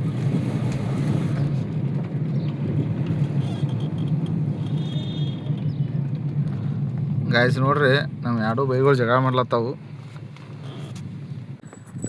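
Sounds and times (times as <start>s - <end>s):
vehicle engine running: 0.0s - 9.1s
road and wind noise: 0.0s - 12.0s.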